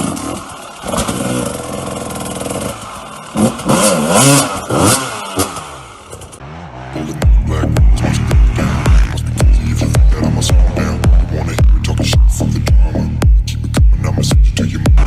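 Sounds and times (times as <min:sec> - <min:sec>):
dirt bike engine revving: 0:00.0 - 0:15.0
music with heavy beat: 0:07.0 - 0:15.0.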